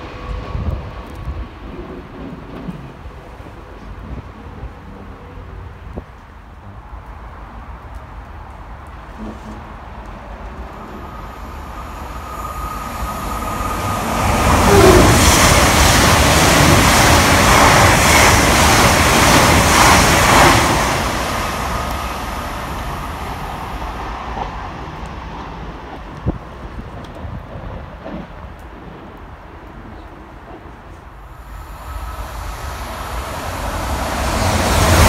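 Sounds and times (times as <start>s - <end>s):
train wheels rushing on rail: 0.0s - 35.0s
faint high whine: 10.8s - 14.8s, 31.3s - 35.0s.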